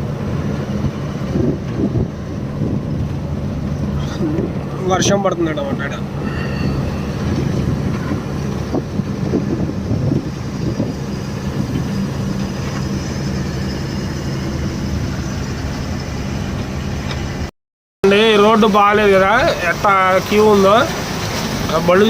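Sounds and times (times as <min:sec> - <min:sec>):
diesel engine humming: 0:00.0 - 0:22.0
road and cab noise: 0:00.0 - 0:22.0.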